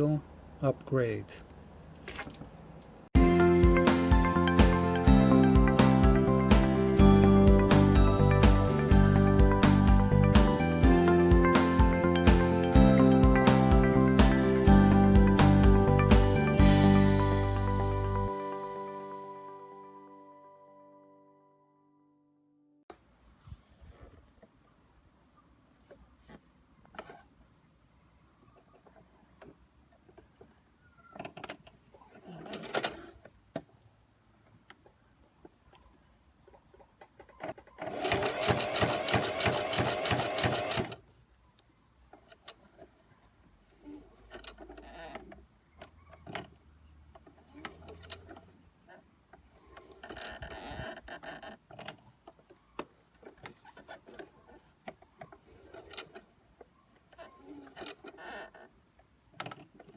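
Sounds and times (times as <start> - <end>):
sewing machine stitching: 31.2 - 33.3, 37.2 - 41.1, 47.2 - 48.6, 49.6 - 56.4, 57.0 - 58.6.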